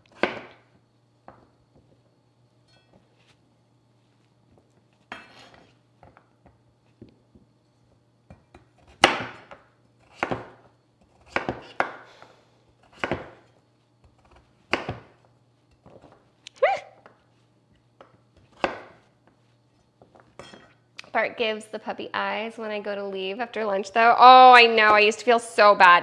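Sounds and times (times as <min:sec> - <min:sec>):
knife chopping on cutting board: 0:00.0 - 0:00.6, 0:08.3 - 0:12.1, 0:12.8 - 0:15.2, 0:18.0 - 0:19.1.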